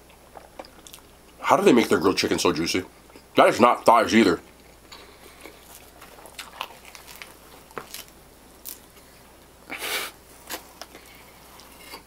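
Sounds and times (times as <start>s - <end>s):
wet chewing: 4.5s - 9.1s.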